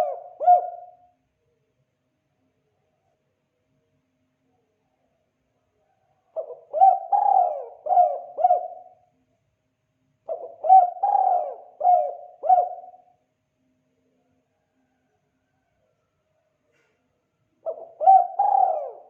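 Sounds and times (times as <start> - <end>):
dove cooing: 0.0 - 1.1, 6.3 - 9.1, 10.2 - 13.2, 17.6 - 19.0.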